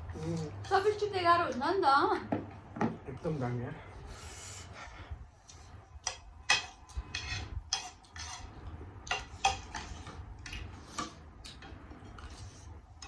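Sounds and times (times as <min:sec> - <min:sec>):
utensils scraping a bowl: 0:05.5 - 0:13.0.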